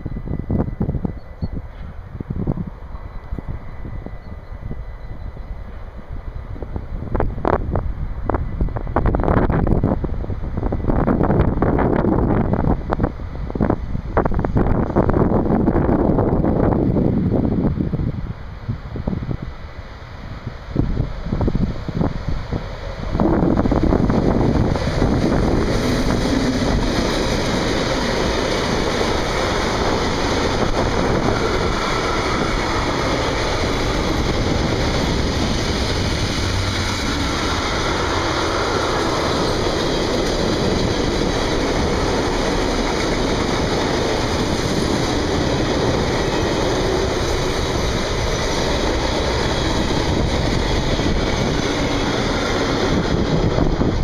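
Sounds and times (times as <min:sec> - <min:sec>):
wind on microphone: 0:00.0 - 0:54.0
train wheels running over rails: 0:18.6 - 0:54.0.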